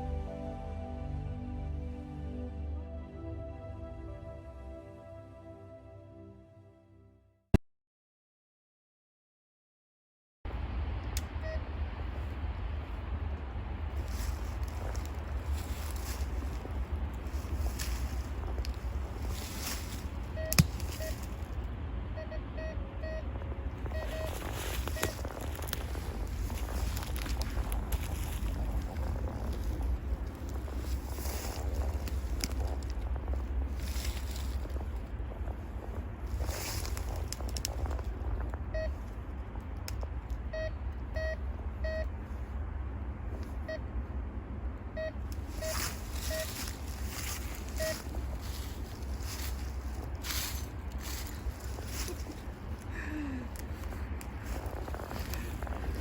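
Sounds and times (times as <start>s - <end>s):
wind rumbling on microphone: 10.5s - 56.0s
short beeps: 20.4s - 21.2s, 23.9s - 25.2s, 40.5s - 42.1s.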